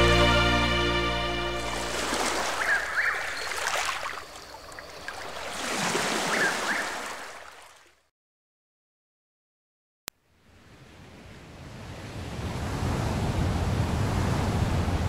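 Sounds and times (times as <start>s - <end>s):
running water: 1.4s - 8.0s.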